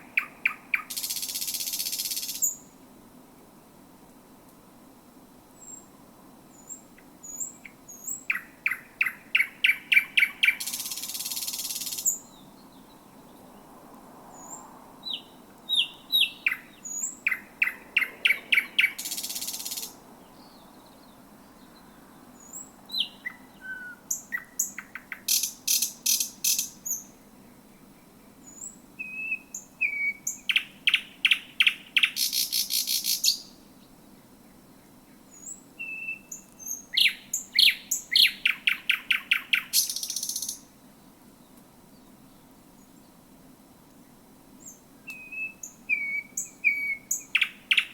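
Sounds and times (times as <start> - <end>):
bird singing with rattling trills: 6.6 - 13.1, 14.4 - 21.2, 28.4 - 33.6, 35.3 - 40.6, 44.6 - 47.9.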